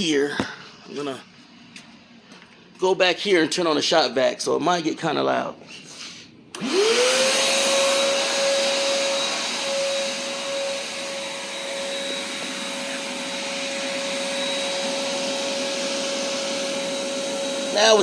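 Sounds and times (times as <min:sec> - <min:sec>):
shop vac motor whine and air rush: 0:05.7 - 0:18.0.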